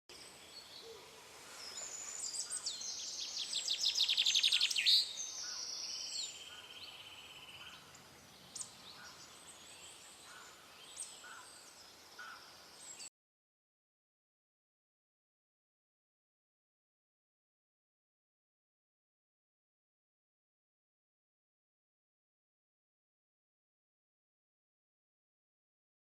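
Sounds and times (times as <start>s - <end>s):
songbirds singing and chirping: 0.1s - 13.1s.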